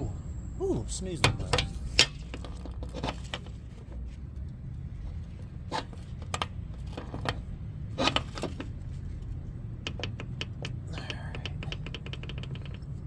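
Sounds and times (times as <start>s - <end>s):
steady low hum: 0.0s - 3.6s.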